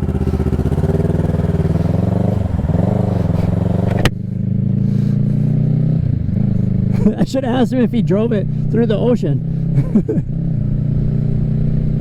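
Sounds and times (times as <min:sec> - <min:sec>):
motorcycle engine accelerating: 0:00.0 - 0:12.0
sharp click: 0:03.8 - 0:04.2.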